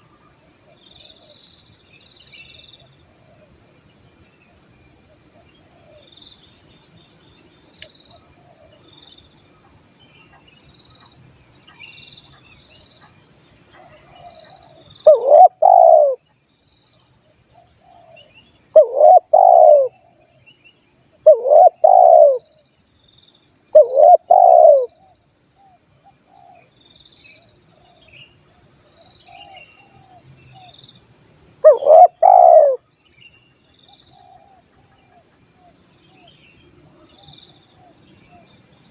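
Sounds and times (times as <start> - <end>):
dove cooing: 13.8 - 16.2, 18.8 - 20.0, 21.2 - 22.5, 23.7 - 25.0, 31.6 - 32.8.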